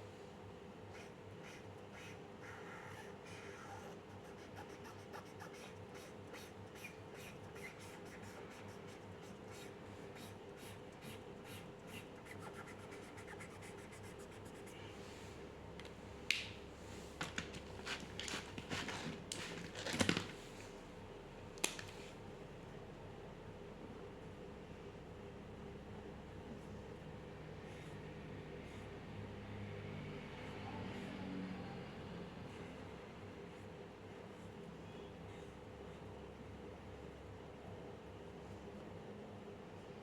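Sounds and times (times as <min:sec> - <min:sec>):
faint steady hum: 0:00.0 - 0:40.0
pencil scratching on paper: 0:00.9 - 0:14.8.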